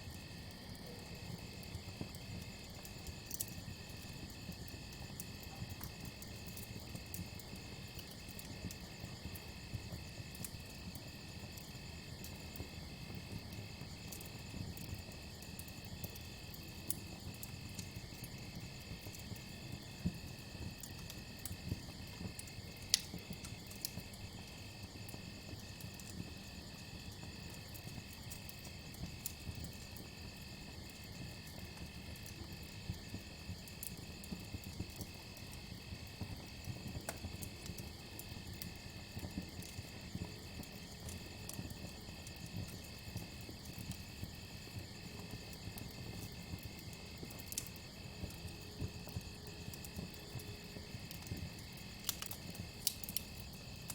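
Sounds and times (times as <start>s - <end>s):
campfire crackling and popping: 0.0s - 53.9s.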